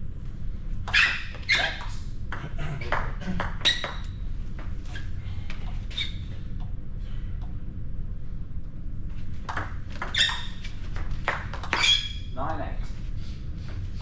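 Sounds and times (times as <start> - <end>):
racket hitting ball: 9.4 - 12.0.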